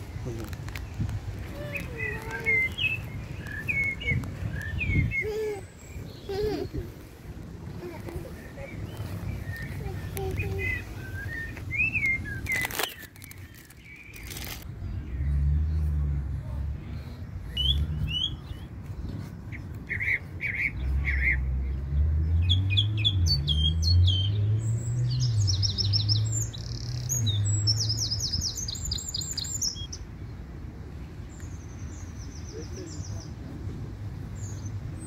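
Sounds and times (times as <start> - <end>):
birds chirping and trilling: 0.0 - 33.4, 34.2 - 35.0
low droning rumble: 13.2 - 18.5.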